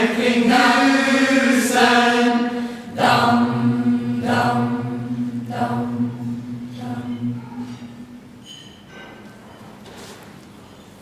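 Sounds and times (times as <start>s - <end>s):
choir of young voices singing: 0.0s - 8.2s
low sustained note: 0.1s - 8.9s.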